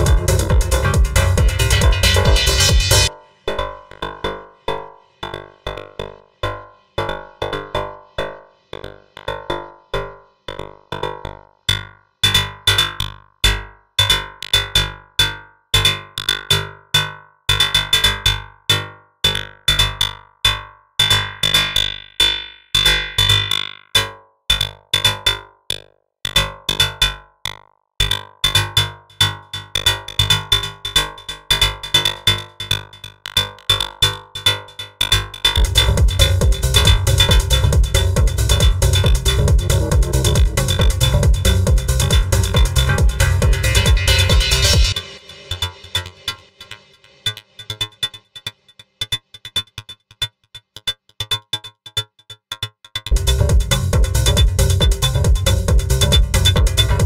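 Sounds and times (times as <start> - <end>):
steady high tone: 0.0 - 3.1, 35.6 - 49.6
heavy bass beat: 0.0 - 3.2, 34.4 - 48.2, 53.0 - 57.0
techno synthesizer loop: 0.0 - 3.2, 29.0 - 57.0.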